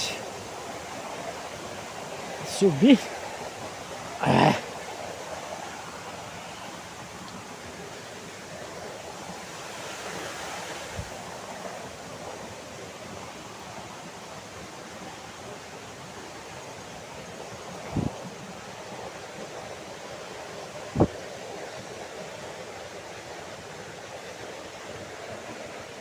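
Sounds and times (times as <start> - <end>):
waterfall rushing: 0.0 - 4.8.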